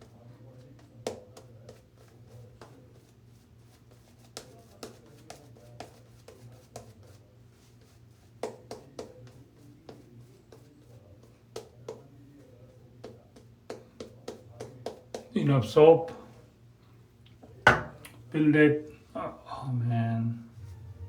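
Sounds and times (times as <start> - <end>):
brush tapping on soap tub: 0.0 - 15.4, 17.4 - 18.2
steady low hum: 16.2 - 21.0.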